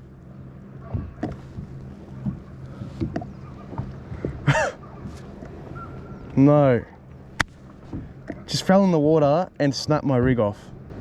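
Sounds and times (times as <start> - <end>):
light knocks and clicks on kayak: 0.8 - 4.4, 7.4 - 8.6.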